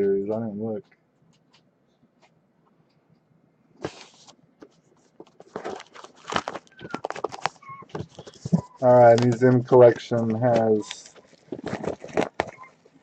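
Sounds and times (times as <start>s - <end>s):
cardboard crackles and clicks: 3.8s - 13.0s
plastic wrap crinkling: 3.8s - 13.0s
packaging tearing: 5.4s - 9.4s, 10.9s - 12.5s.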